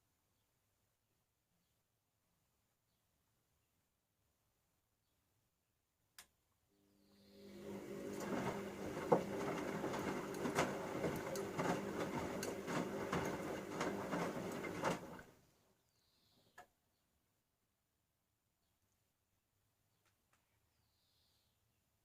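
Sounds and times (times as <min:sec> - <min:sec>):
washing machine motor hum: 0:06.8 - 0:15.3.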